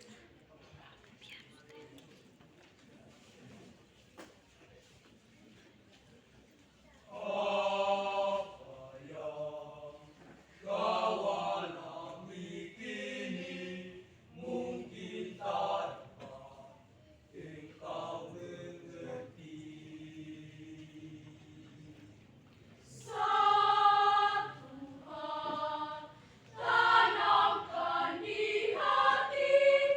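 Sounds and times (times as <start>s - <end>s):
choir singing: 7.1s - 29.9s.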